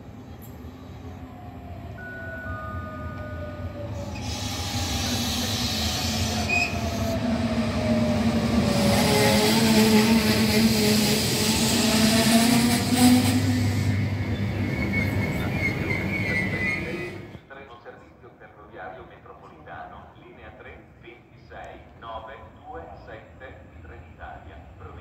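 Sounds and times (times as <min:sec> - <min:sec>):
electric train approaching: 0:00.0 - 0:17.4.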